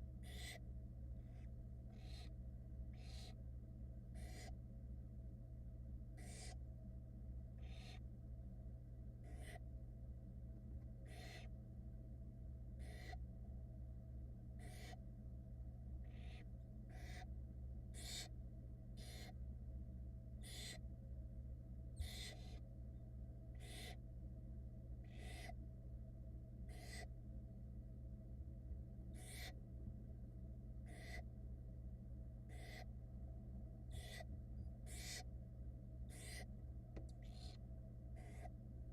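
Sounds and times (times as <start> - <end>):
steady low hum: 0.0 - 38.9
owl nestlings hissing calls: 0.2 - 0.6, 1.2 - 3.4, 4.2 - 4.6, 6.2 - 6.6, 7.6 - 8.0, 9.2 - 9.6, 11.0 - 11.6, 12.8 - 13.2, 14.6 - 15.0, 16.0 - 17.3, 17.9 - 18.4, 19.0 - 19.4, 20.4 - 20.8, 22.0 - 22.6, 23.6 - 24.0, 25.0 - 25.6, 26.7 - 27.1, 29.2 - 29.6, 30.8 - 31.3, 32.5 - 32.9, 33.9 - 35.3, 36.1 - 36.5, 37.2 - 37.6, 38.2 - 38.5.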